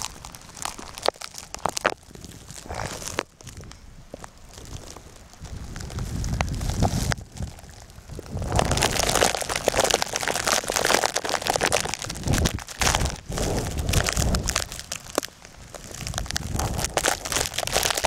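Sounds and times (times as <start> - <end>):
blizzard wind buffeting microphone: 0.0 - 18.0
dense crunching crackle: 0.0 - 18.0.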